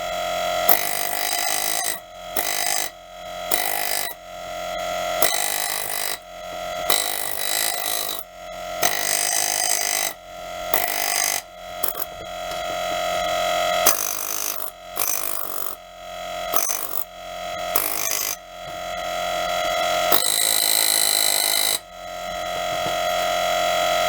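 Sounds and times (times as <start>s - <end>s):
steady ringing tone: 0.0s - 24.0s
scraping on rusty metal: 6.9s - 12.8s.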